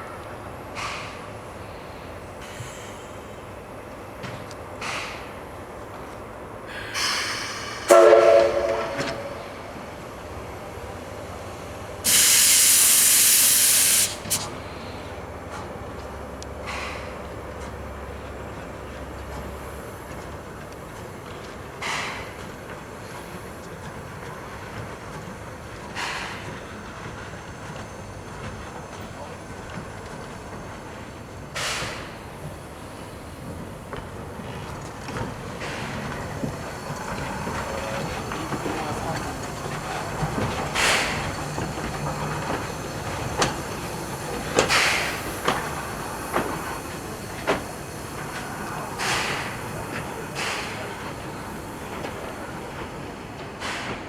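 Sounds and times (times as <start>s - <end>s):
loud steam hissing: 0.0s - 4.1s, 6.6s - 15.4s, 30.8s - 54.0s
locomotive whistle blast: 7.9s - 9.6s
short sharp hiss: 12.1s - 14.5s.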